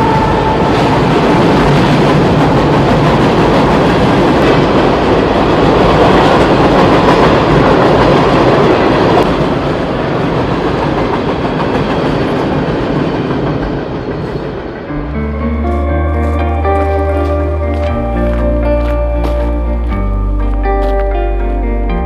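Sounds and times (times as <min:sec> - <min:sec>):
train rumbling past: 0:00.0 - 0:22.0.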